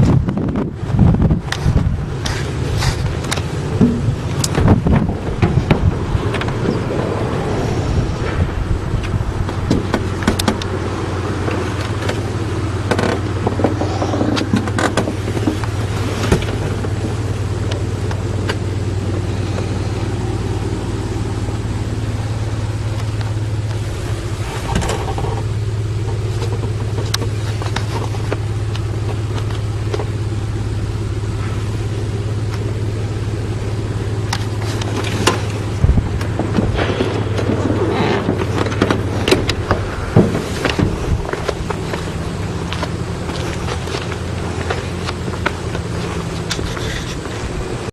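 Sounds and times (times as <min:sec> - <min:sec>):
propeller aircraft engine droning: 0:00.0 - 0:47.9.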